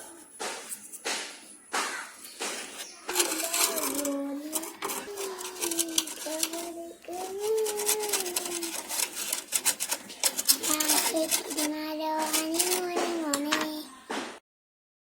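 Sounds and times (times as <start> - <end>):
rubbing or scraping: 2.2 - 13.8.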